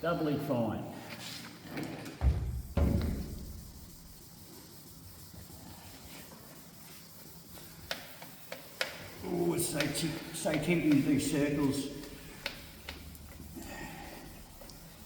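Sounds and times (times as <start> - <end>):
low thump: 2.2 - 3.6
hand sanding plastic: 2.3 - 15.0.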